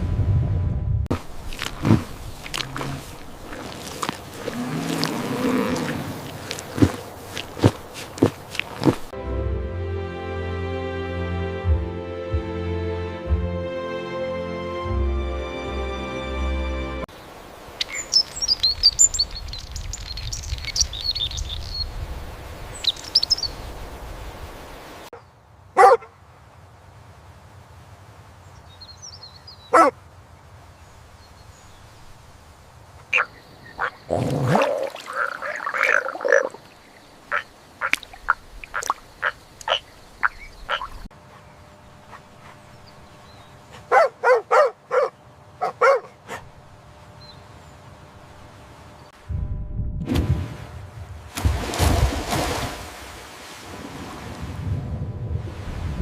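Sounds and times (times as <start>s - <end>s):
low rumble: 0.0s - 1.2s, 49.2s - 52.0s
animal calls: 33.1s - 41.1s.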